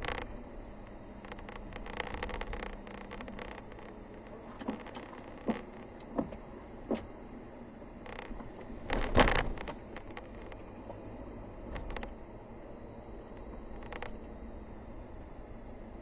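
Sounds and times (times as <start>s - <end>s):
vehicle rumbling: 0.0s - 16.0s
sharp knocks and rattles: 1.2s - 7.1s.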